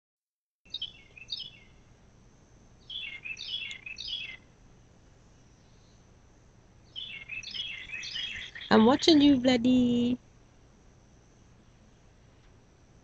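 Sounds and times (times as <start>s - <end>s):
songbird singing: 0.7s - 1.9s, 2.8s - 4.6s, 6.8s - 10.2s
faint background hiss: 0.7s - 13.0s.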